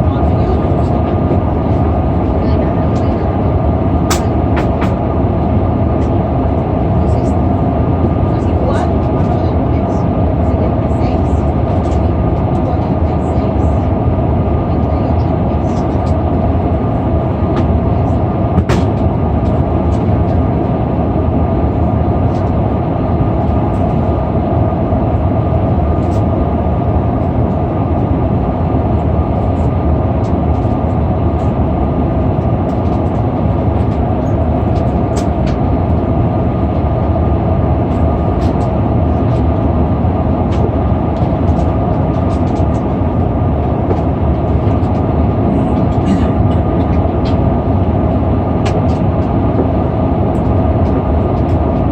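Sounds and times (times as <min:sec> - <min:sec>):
airliner cabin rumble: 0:00.0 - 0:51.9.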